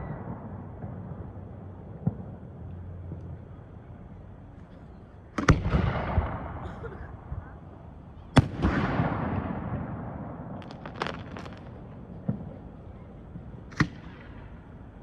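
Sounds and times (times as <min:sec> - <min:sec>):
firework bangs: 0:08.4 - 0:12.8
fireworks crackling: 0:09.9 - 0:12.8
dull firework thump: 0:10.6 - 0:12.6.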